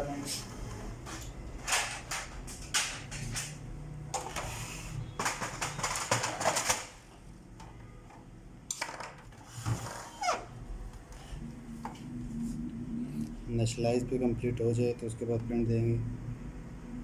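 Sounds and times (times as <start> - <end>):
laser printer clicking and clattering: 5.1 - 7.0
low steady hum: 10.4 - 17.0.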